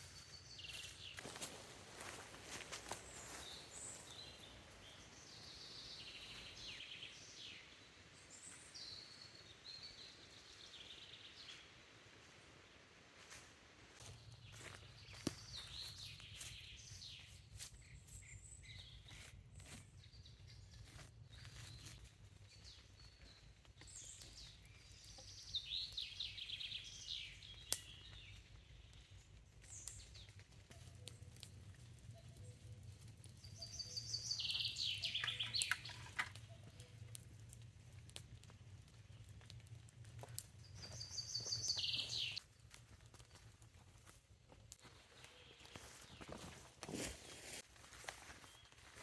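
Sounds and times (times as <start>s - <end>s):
songbirds trilling: 32.1s - 37.6s, 40.7s - 42.4s.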